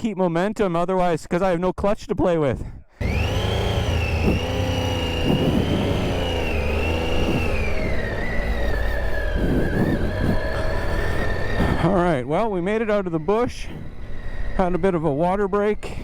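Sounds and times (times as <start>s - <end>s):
motorcycle engine running: 3.0s - 12.2s.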